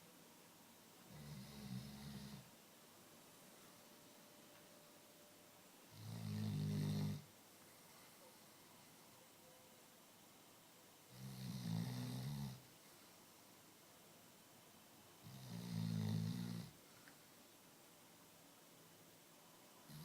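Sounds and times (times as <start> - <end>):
dog snoring: 1.1 - 2.5, 5.9 - 7.3, 11.1 - 12.7, 15.2 - 16.8.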